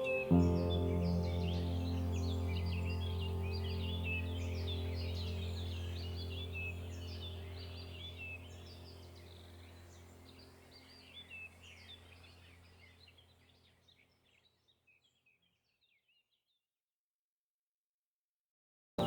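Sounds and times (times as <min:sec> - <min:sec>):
small birds chirping: 0:00.0 - 0:16.5.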